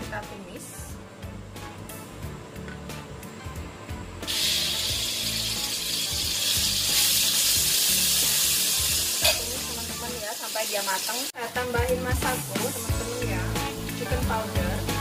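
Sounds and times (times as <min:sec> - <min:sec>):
spice paste sizzling in oil: 0:04.2 - 0:15.0.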